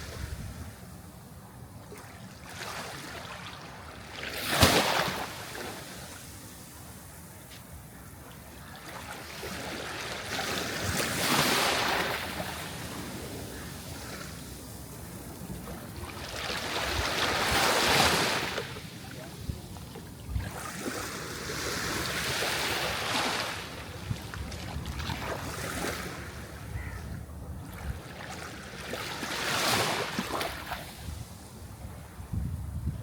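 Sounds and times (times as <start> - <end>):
sea waves breaking: 1.9 - 6.4, 8.5 - 26.7, 27.7 - 31.4.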